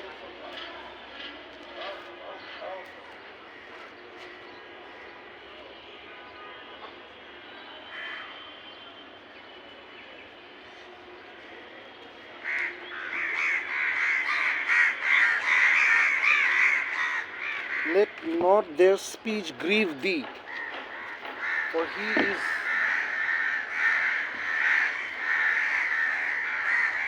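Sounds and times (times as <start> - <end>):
flock of birds calling: 12.4 - 27.0.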